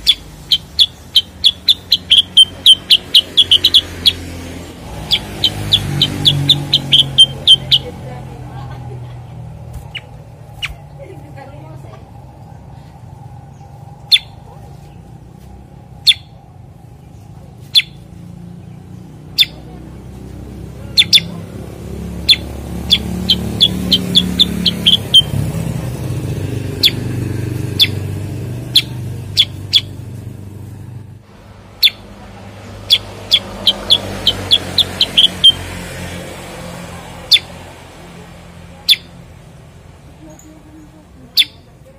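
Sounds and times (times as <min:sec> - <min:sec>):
bird sharp chirps: 0:00.0 - 0:08.0, 0:13.5 - 0:15.1, 0:16.0 - 0:16.4, 0:17.0 - 0:18.1, 0:19.3 - 0:19.7, 0:20.9 - 0:21.4, 0:22.2 - 0:25.7, 0:26.7 - 0:30.0, 0:31.8 - 0:32.1, 0:32.8 - 0:35.8, 0:41.4 - 0:41.7.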